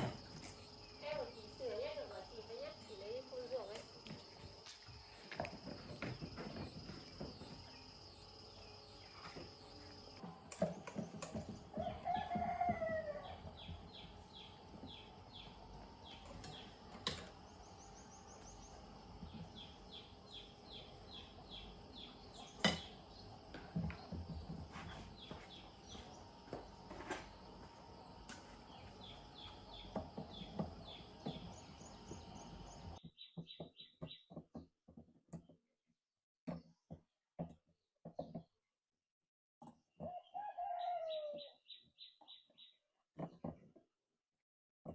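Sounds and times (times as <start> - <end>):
rooster crowing: 11.7 - 13.6, 40.1 - 41.6.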